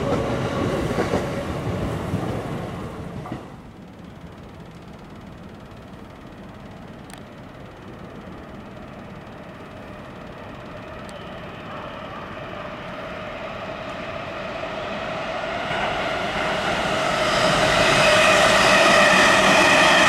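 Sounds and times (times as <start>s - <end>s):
electric train approaching: 0.0s - 20.0s
train hum of steady tones: 0.0s - 20.0s.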